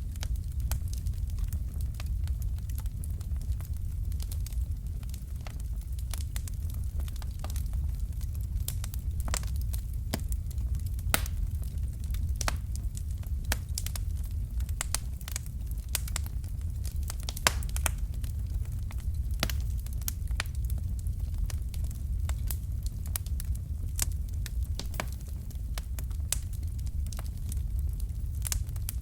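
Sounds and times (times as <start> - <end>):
low rumble of flames: 0.0 - 29.0
wood fire crackling: 0.0 - 29.0.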